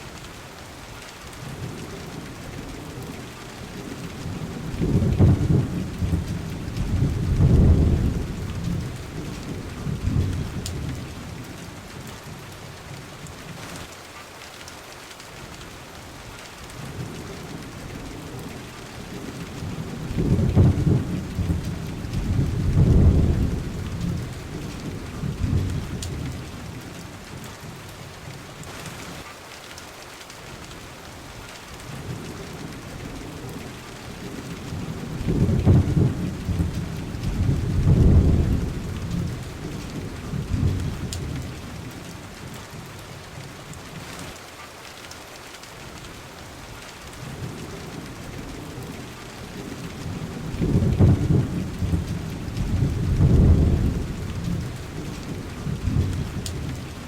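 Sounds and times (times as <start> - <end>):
steady rain falling: 0.0 - 57.0
rolling thunder: 3.9 - 11.4, 17.0 - 27.0, 32.0 - 42.0, 47.3 - 57.0.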